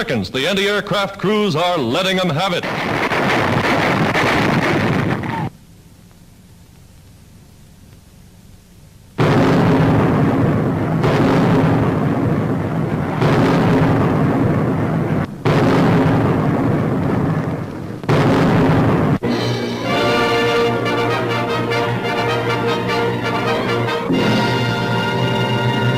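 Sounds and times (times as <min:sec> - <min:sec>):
anti-aircraft gunfire and explosions: 0:02.5 - 0:05.5, 0:09.2 - 0:19.4
brass orchestral fanfare: 0:19.2 - 0:25.9.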